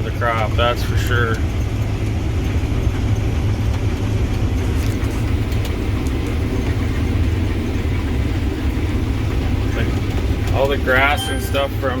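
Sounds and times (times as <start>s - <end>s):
combine harvester droning: 3.3s - 12.0s.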